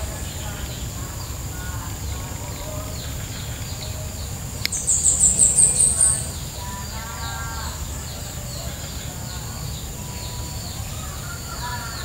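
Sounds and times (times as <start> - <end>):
birds chirping: 0.0 - 12.0
high insect whine: 0.0 - 12.0
sharp tick: 4.6 - 5.1.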